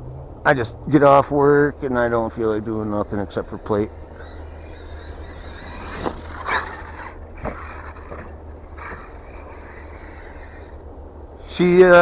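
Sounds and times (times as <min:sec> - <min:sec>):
steady low rumble: 0:00.0 - 0:12.0
toy truck motor whooshes: 0:02.3 - 0:11.0.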